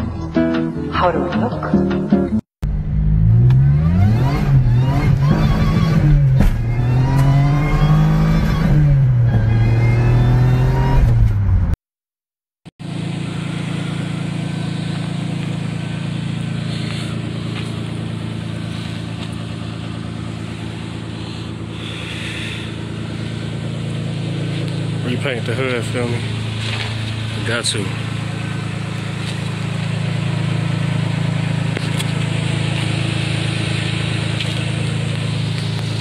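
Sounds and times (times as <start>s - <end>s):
car engine revving: 2.6s - 11.8s, 12.8s - 36.0s
car engine idling: 12.8s - 36.0s.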